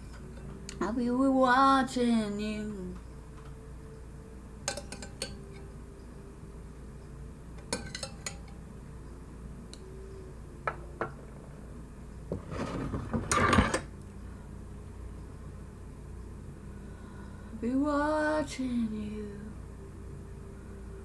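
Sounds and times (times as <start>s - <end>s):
metal spoon clinking on bowl: 4.7s - 5.6s, 7.6s - 8.6s
spoon scraping bowl: 12.3s - 13.8s.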